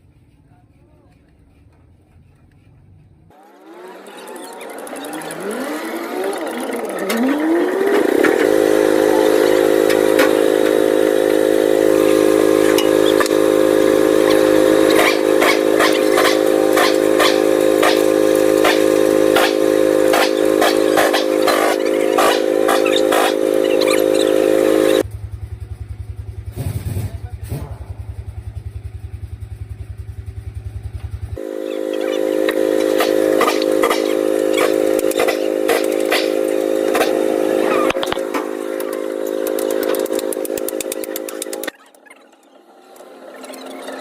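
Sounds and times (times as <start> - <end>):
power tool motor running: 3.3 - 25.1, 31.4 - 42.0
sharp metallic clicks and clatter: 32.9 - 37.3, 37.9 - 44.0.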